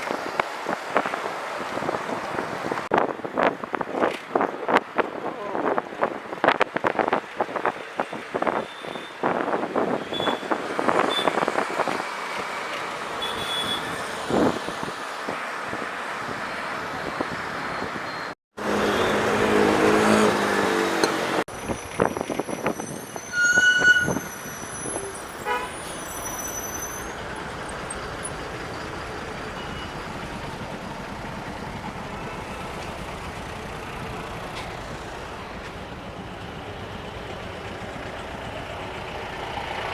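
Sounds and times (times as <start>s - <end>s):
road and wind noise: 0.0s - 39.9s
vehicle horns tooting: 11.1s - 11.4s, 13.2s - 14.0s, 18.6s - 20.3s, 23.2s - 26.3s.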